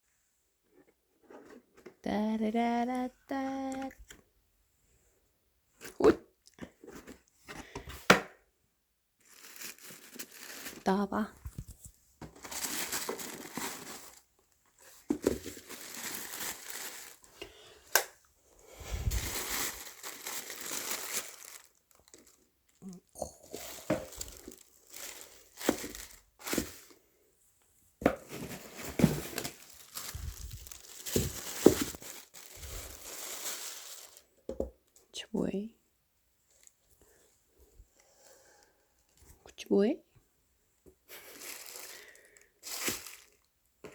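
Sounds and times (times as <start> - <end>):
paper crinkling and rustling: 9.2 - 17.3, 19.0 - 22.5, 23.6 - 26.9, 28.2 - 34.2, 41.2 - 43.5.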